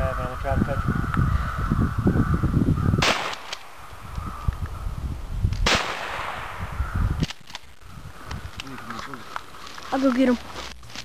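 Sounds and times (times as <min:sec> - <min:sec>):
shotgun shots echoing: 0:03.0 - 0:03.9, 0:05.6 - 0:07.6.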